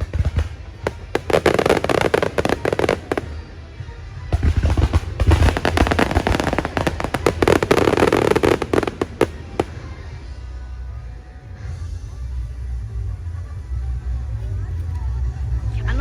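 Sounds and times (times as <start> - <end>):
fireworks bangs and crackling: 0.0 - 11.6.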